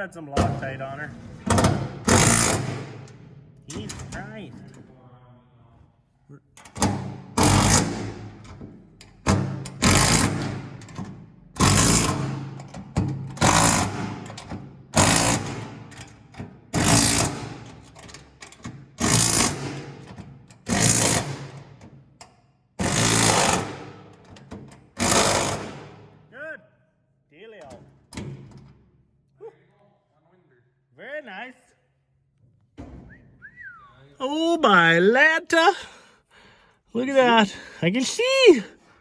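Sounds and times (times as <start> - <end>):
impact driver hammering: 1.5 - 3.2, 6.8 - 18.0, 18.7 - 21.8, 22.8 - 24.3, 24.9 - 26.2.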